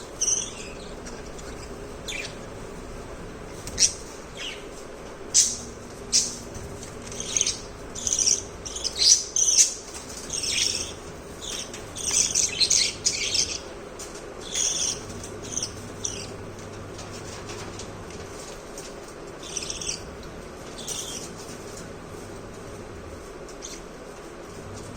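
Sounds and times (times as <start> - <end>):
budgerigars chirping: 0.2 - 2.6, 3.7 - 4.7, 5.3 - 6.4, 7.1 - 13.7, 14.4 - 16.4, 19.4 - 20.1.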